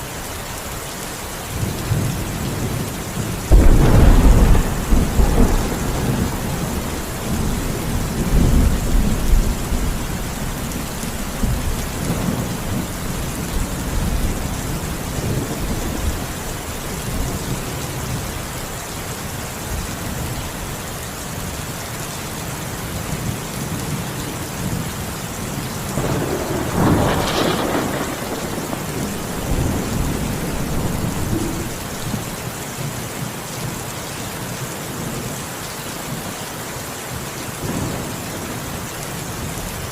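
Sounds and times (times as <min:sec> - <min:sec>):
steady rain: 0:00.0 - 0:39.9
sharp thunderclap: 0:03.5 - 0:16.2, 0:26.0 - 0:32.3
thunder rumble: 0:03.5 - 0:18.4, 0:25.9 - 0:32.4.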